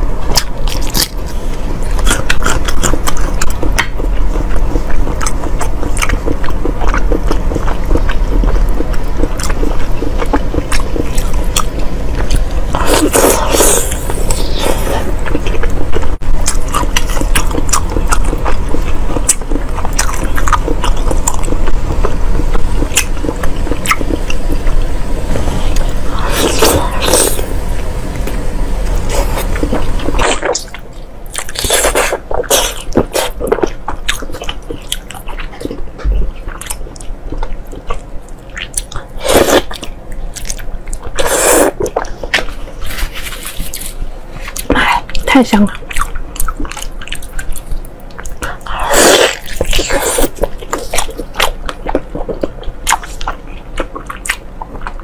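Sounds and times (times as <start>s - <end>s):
steady low hum: 0.0s - 55.0s
wet chewing and biting: 0.3s - 24.7s, 45.7s - 55.0s.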